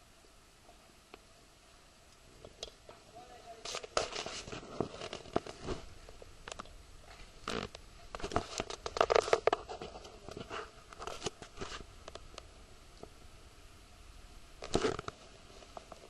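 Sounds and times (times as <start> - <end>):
rustling and clicking: 2.1 - 13.2, 14.6 - 16.0.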